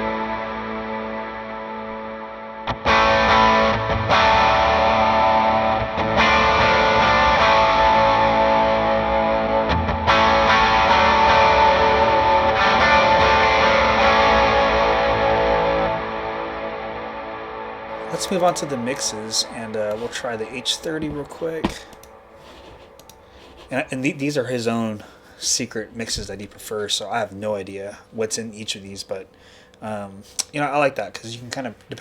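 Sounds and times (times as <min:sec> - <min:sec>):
overdriven electric guitar chords: 0:00.0 - 0:23.4.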